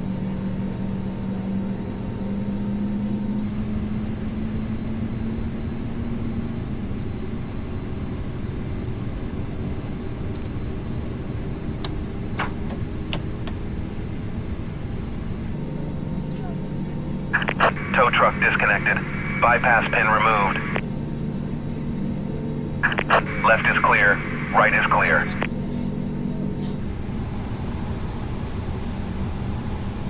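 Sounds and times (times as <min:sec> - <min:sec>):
faint clicks: 0:17.4 - 0:20.8, 0:22.8 - 0:25.5
jet engine idling hum: 0:17.4 - 0:20.8, 0:22.8 - 0:25.5.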